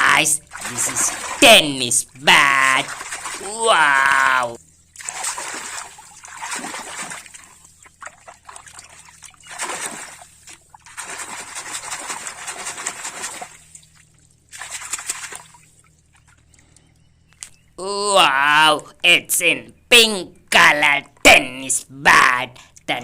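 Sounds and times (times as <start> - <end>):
water pouring and splashing: 0.0 - 1.6, 2.4 - 16.6.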